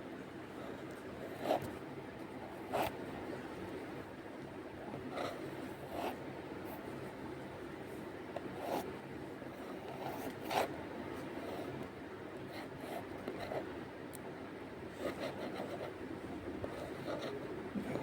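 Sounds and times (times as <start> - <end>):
drawing tool scratching on paper: 2.6 - 3.0, 5.0 - 6.9, 8.4 - 11.9, 12.5 - 13.7, 14.9 - 16.0, 16.6 - 17.5.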